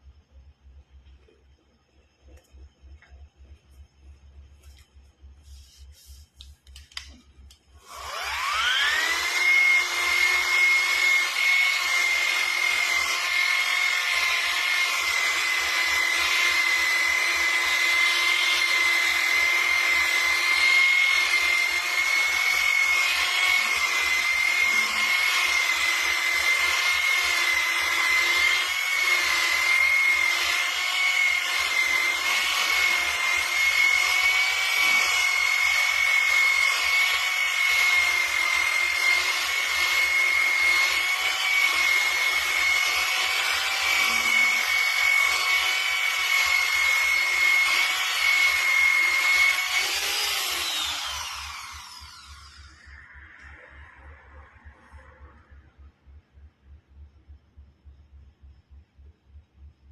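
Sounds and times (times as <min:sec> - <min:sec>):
electric power tool whining: 0:07.8 - 0:53.7.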